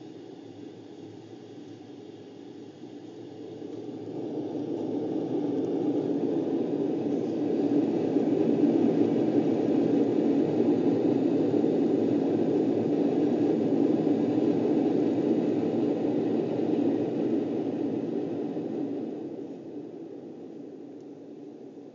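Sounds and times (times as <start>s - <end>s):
aircraft engines and airflow roar: 0.1s - 21.9s.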